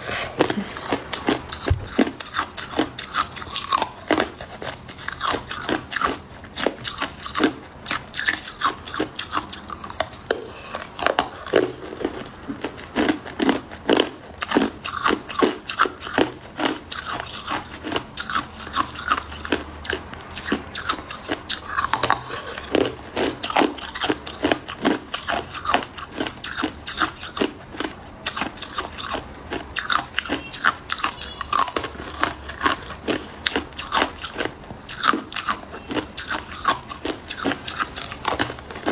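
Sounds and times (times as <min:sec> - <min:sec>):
ice cubes crunching being chewed: 0:00.0 - 0:38.9.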